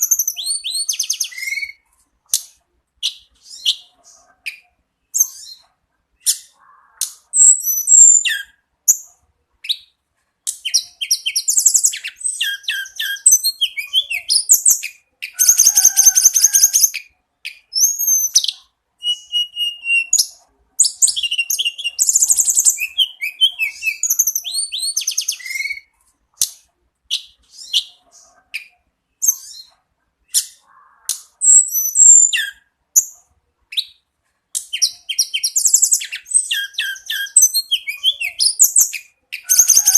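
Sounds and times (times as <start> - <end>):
bird singing whistles and trills: 0.0 - 1.8, 5.2 - 5.6, 7.3 - 9.1, 10.6 - 25.9, 28.6 - 29.7, 31.4 - 33.2, 34.6 - 39.9.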